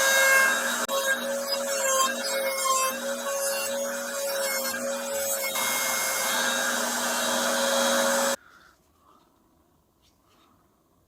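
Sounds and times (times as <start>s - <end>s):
small electric motor whining: 0.0s - 8.4s.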